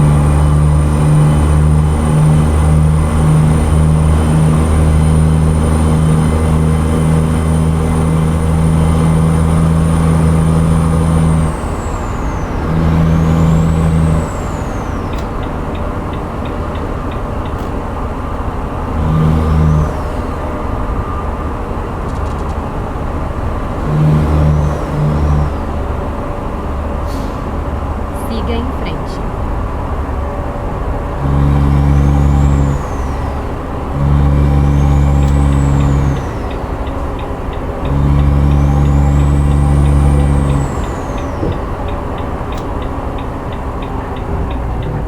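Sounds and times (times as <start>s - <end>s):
truck engine and road noise: 0.0s - 45.0s.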